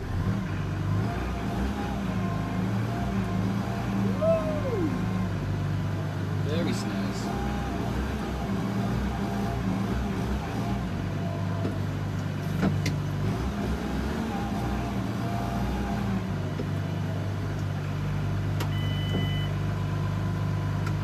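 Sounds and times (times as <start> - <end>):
tractor diesel engine running: 0.0 - 8.5
short electronic beep: 18.7 - 19.6.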